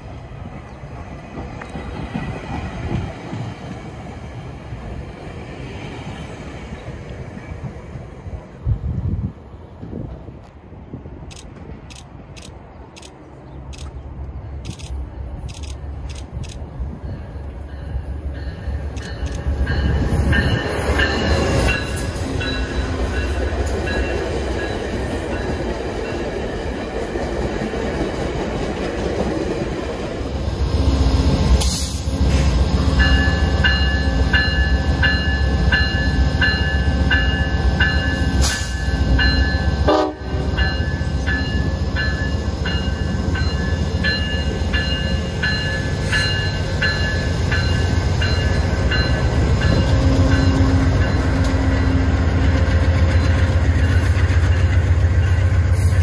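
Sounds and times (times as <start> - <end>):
diesel locomotive engine rumble: 0.0 - 56.0
locomotive bell ringing: 16.7 - 26.4, 33.0 - 55.8.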